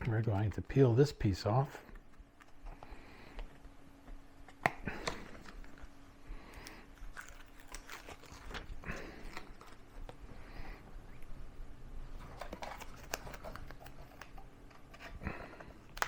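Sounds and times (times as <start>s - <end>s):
adhesive backing peeling crackle: 6.5s - 10.3s, 12.2s - 16.0s.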